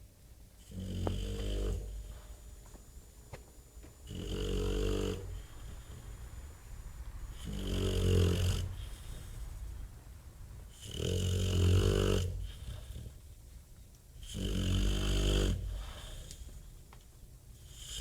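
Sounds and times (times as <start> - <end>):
dog snoring heavily: 0.6 - 2.6, 4.0 - 6.2, 7.2 - 9.4, 10.7 - 13.2, 14.2 - 16.4.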